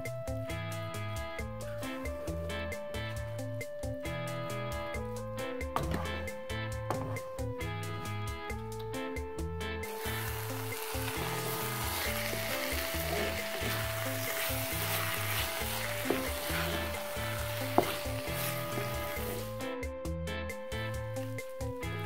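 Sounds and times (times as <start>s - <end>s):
food sizzling in a wok: 9.8s - 19.6s.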